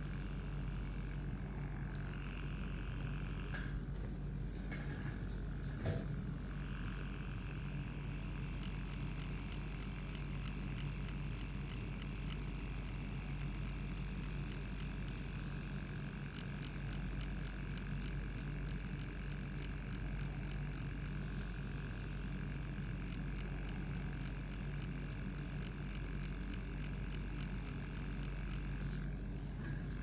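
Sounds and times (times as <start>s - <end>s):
tattoo machine humming: 0.0s - 30.0s
needle clicking crackle: 6.6s - 30.0s.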